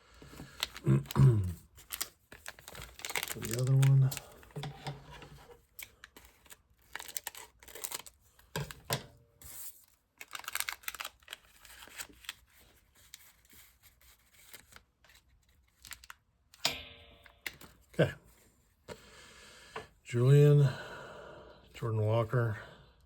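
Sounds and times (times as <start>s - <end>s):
foil wrapper crinkling and tearing: 0.4s - 4.7s, 5.6s - 8.9s, 9.5s - 16.3s.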